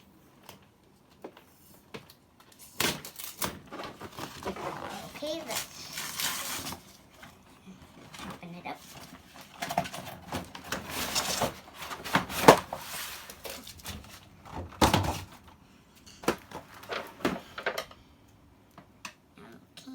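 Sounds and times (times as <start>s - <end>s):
packaging rustling: 2.5s - 15.4s, 16.3s - 17.7s.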